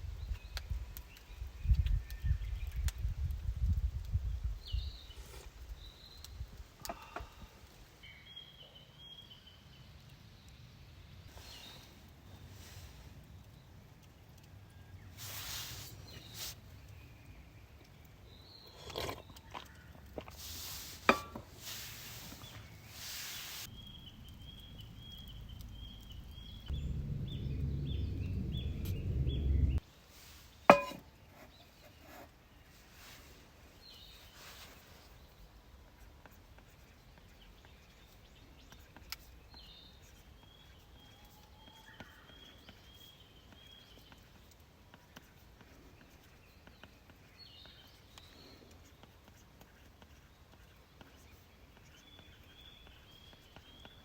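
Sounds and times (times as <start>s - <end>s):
low rumble: 23.7s - 29.8s.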